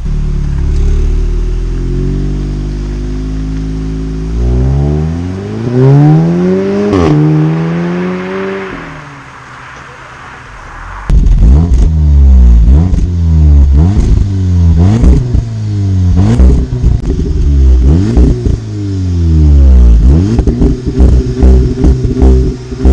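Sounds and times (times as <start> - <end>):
car engine revving: 0.0 - 22.9
exhaust pops and crackles: 11.1 - 18.7, 19.9 - 22.9.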